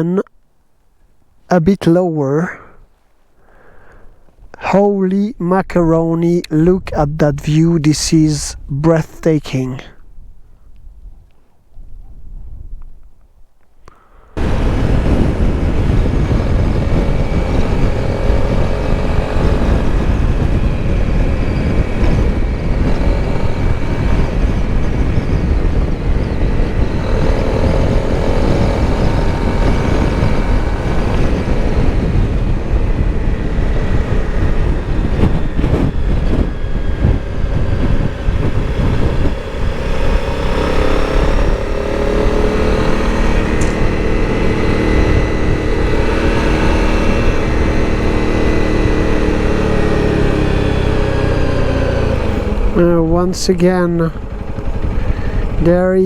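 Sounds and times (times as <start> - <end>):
wind rush over microphone: 5.8 - 56.0
motorcycle engine: 13.8 - 56.0.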